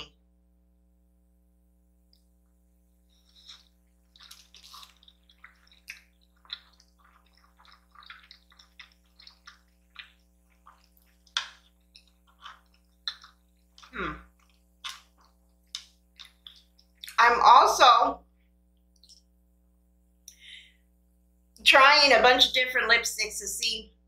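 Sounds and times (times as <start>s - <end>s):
low electrical hum: 0.0s - 24.0s
wet chewing smacks: 3.2s - 17.2s.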